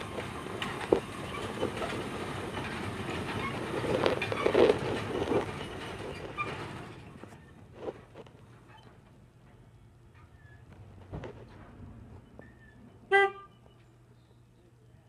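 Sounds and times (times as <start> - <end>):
train wheels clacking on rails: 0.0 - 7.0.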